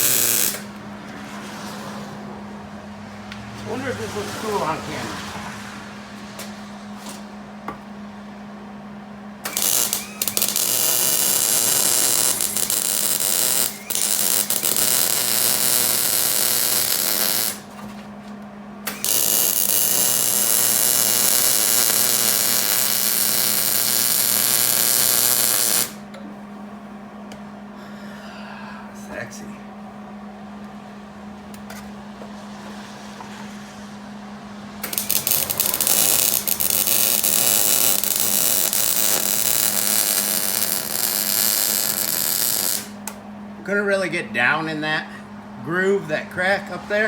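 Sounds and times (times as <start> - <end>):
welding arc crackling sizzle: 0.0 - 0.8, 9.4 - 17.7, 18.9 - 26.0, 34.8 - 43.2.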